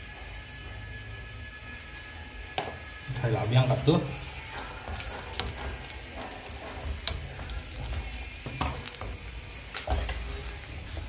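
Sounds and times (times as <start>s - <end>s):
food sizzling in a pan: 0.0s - 11.0s
wooden spatula stirring: 2.6s - 11.0s.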